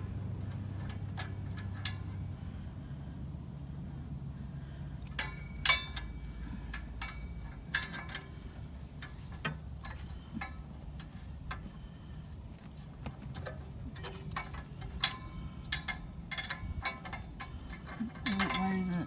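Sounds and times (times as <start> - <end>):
low steady hum: 0.0 - 19.0
metal tools clinking: 5.1 - 11.9, 13.3 - 19.0
metallic ring: 5.1 - 12.0.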